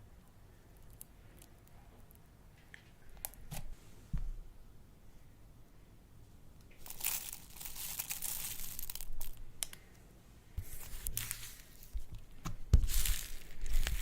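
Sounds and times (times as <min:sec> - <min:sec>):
slime crinkling and crackling: 0:06.7 - 0:09.4, 0:10.6 - 0:14.0.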